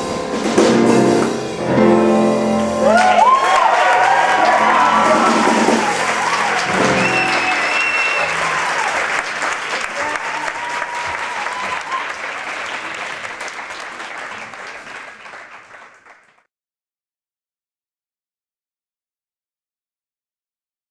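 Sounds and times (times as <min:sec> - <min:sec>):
audience applauding: 0:02.8 - 0:16.5
whistle: 0:06.8 - 0:08.4.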